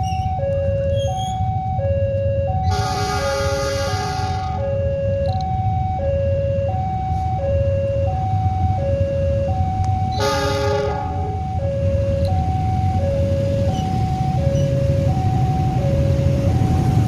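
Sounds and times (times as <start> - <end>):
traffic rumble: 0.0 - 17.0
two-tone warning alarm: 0.0 - 17.0
loud horn blast: 2.6 - 4.7, 10.2 - 11.4.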